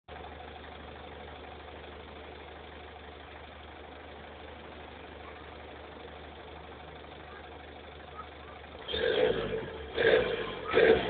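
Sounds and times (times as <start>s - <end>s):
diesel engine idling: 0.1s - 11.0s.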